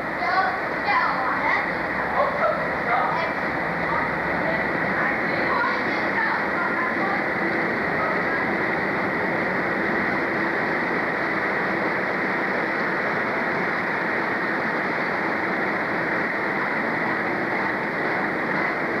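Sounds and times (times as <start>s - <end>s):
train rushing noise: 0.0s - 19.0s.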